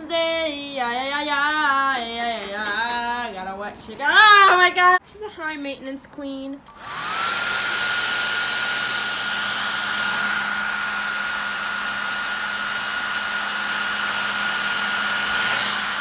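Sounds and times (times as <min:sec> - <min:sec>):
hair dryer running: 0:06.7 - 0:16.0.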